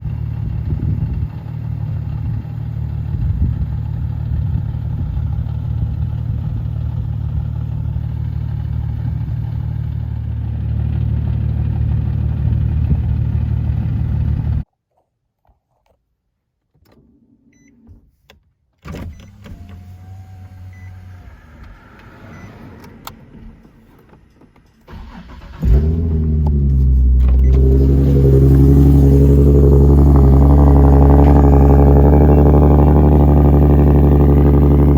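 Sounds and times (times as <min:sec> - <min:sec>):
car engine idling: 0:00.0 - 0:14.6, 0:24.9 - 0:34.9
engine starting: 0:18.9 - 0:31.4.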